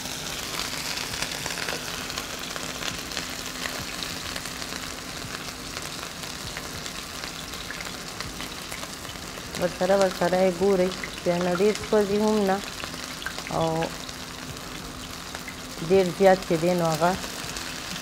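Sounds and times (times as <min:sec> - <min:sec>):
meat patties sizzling in oil: 0:00.0 - 0:18.0.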